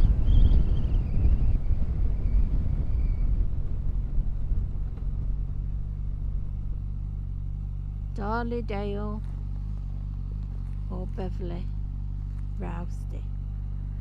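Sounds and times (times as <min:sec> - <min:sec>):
rushing wind: 0:00.0 - 0:06.9
motorcycle engine: 0:00.0 - 0:14.0.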